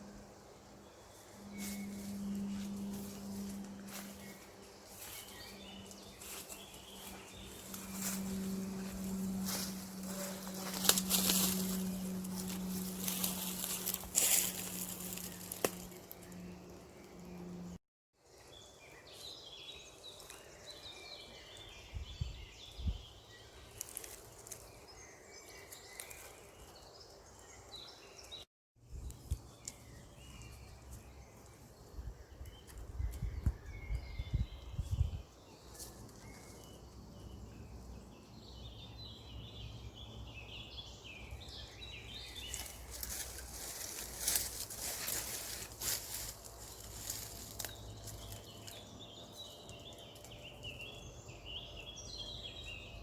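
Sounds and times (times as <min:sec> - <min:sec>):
steady low hum: 0:00.0 - 0:17.8
small birds chirping: 0:00.8 - 0:17.5, 0:18.4 - 0:53.0.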